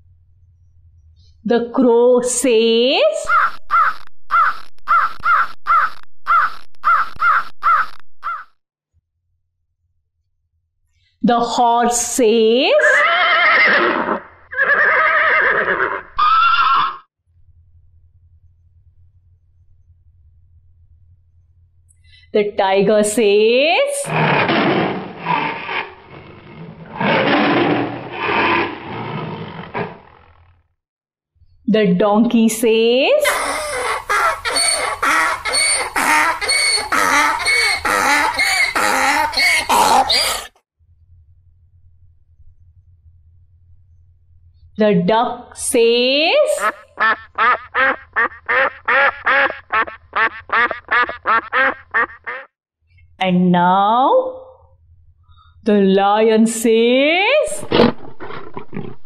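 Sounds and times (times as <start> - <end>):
crow cawing: 3.3 - 8.5, 33.3 - 40.4, 46.6 - 52.5
tiger roaring: 24.0 - 30.4, 57.6 - 59.0.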